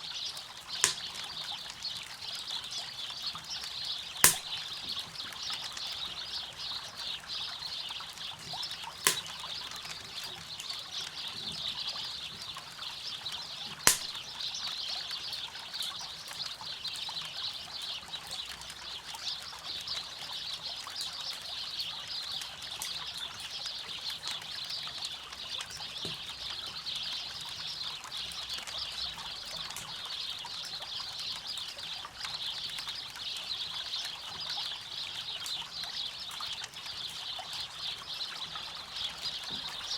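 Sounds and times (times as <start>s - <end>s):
campfire crackling: 0.8s - 1.2s, 4.2s - 4.8s, 8.3s - 9.7s, 13.9s - 14.3s
fire popping: 0.8s - 1.2s, 4.2s - 4.8s, 8.5s - 9.4s, 13.9s - 14.3s.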